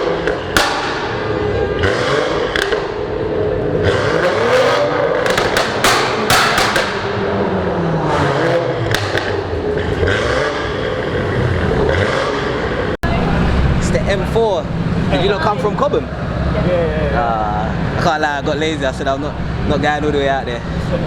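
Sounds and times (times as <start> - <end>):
sharp cracks: 0.0 - 3.1, 4.1 - 7.6, 8.8 - 9.5
car engines revving: 0.0 - 21.0.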